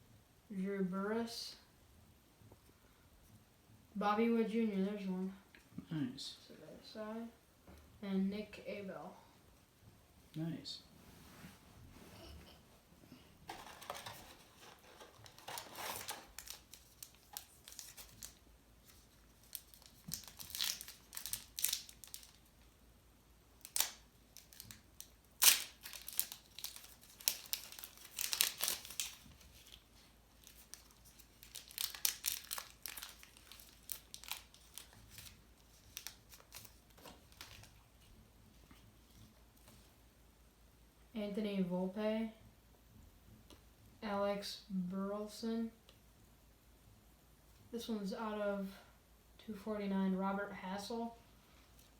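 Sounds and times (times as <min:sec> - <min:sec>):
cards being handled: 0:13.5 - 0:22.4, 0:25.4 - 0:37.8
wrapper tearing and crinkling: 0:13.5 - 0:22.5, 0:23.6 - 0:37.9.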